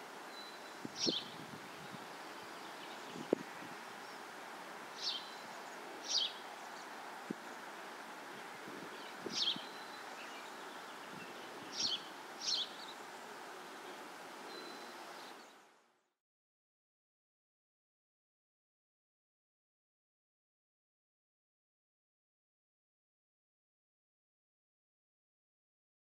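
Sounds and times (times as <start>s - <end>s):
steady background hiss: 0.0s - 16.1s
high bird chirps: 9.3s - 10.6s, 11.2s - 13.0s.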